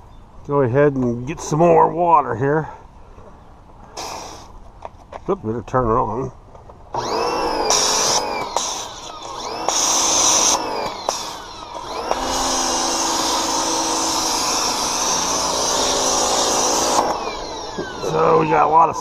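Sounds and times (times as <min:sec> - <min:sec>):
hissing spray: 0:04.0 - 0:04.6, 0:07.7 - 0:11.4
pressure washer motor humming: 0:07.0 - 0:19.0.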